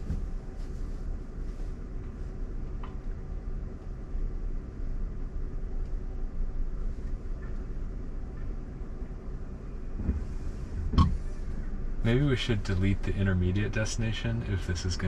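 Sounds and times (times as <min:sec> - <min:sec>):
road and tyre rumble: 0:00.0 - 0:15.0.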